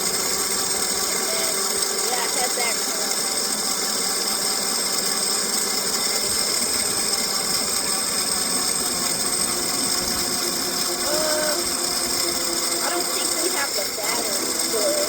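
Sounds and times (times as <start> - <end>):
bike mechanical running noise: 0.0 - 15.0
high-pitched whine: 5.8 - 15.0.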